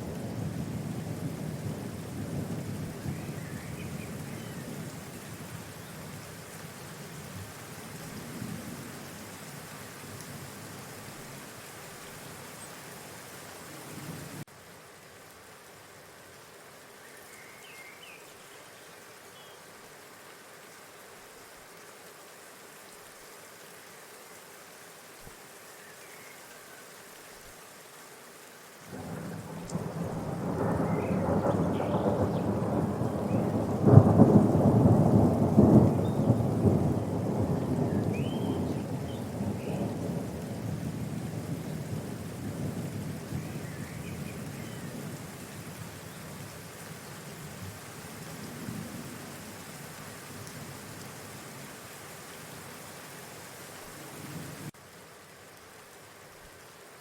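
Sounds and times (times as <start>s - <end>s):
steady rain: 0.0s - 57.0s
thunder rolling: 28.9s - 41.1s.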